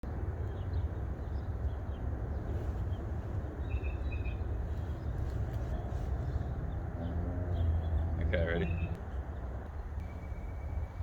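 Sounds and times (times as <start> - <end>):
low outdoor rumble: 0.0 - 11.0
faint high bird chirps: 3.6 - 9.0, 10.0 - 11.0.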